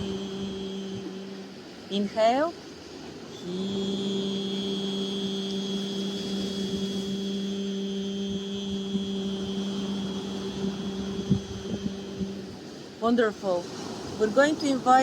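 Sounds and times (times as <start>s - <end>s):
person holding long heee sound: 0.0s - 1.8s, 3.3s - 12.8s.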